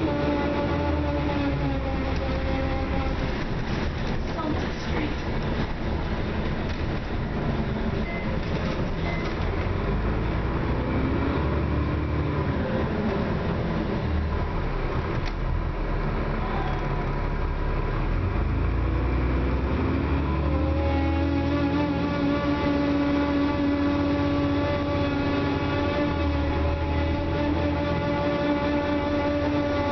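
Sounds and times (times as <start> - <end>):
whining tone: 0.0 - 3.9, 18.8 - 29.9
road and body noise: 0.0 - 21.0
bus engine rumble: 0.0 - 29.9.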